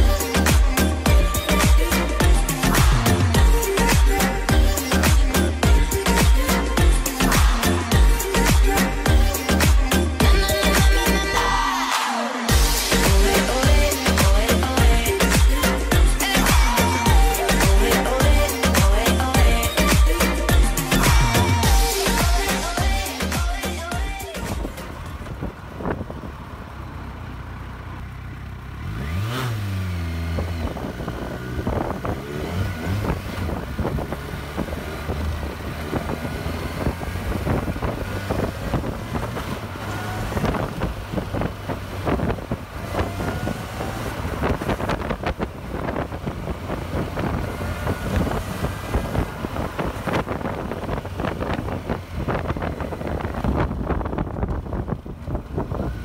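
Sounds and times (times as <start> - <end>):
motorcycle engine accelerating: 0.0 - 56.0
wind buffeting microphone: 30.4 - 56.0.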